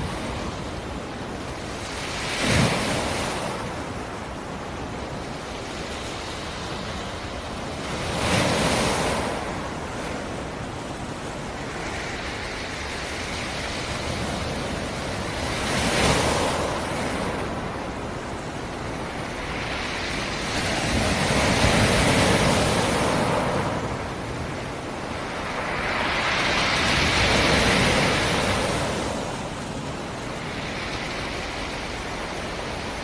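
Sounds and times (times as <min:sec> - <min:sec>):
waves breaking on shore: 0:00.0 - 0:33.0.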